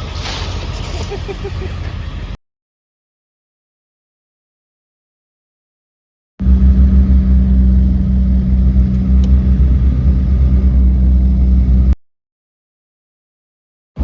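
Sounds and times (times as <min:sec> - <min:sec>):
vehicle engine droning: 0:00.0 - 0:02.4, 0:06.4 - 0:12.0.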